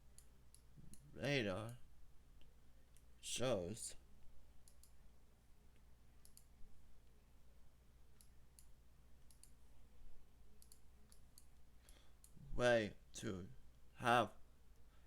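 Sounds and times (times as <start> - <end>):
low steady hum: 0.0 - 15.0
computer mouse clicks: 4.6 - 5.0, 6.2 - 6.5, 8.2 - 9.6, 10.6 - 12.4.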